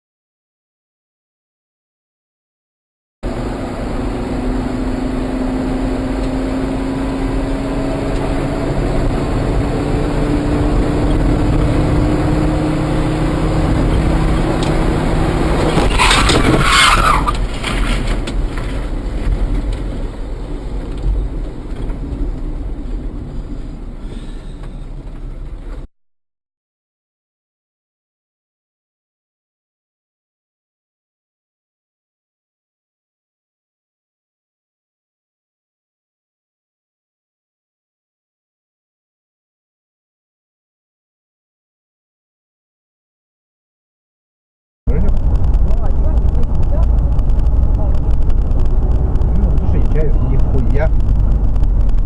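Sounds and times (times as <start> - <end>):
car engine accelerating: 3.2 - 25.9, 44.9 - 52.0
road noise inside car: 3.2 - 25.9, 44.9 - 52.0.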